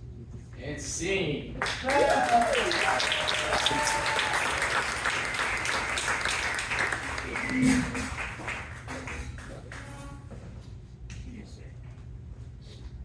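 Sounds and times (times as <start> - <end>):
audience applauding: 1.6 - 9.9.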